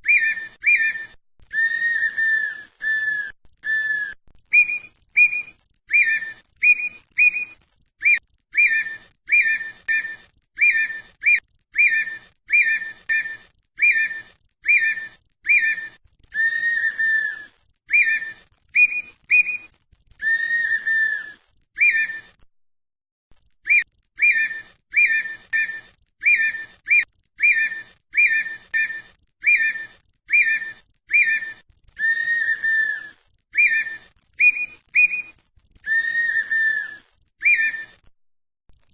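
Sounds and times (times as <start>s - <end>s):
bird whistling song: 0.0s - 22.4s, 23.6s - 38.1s.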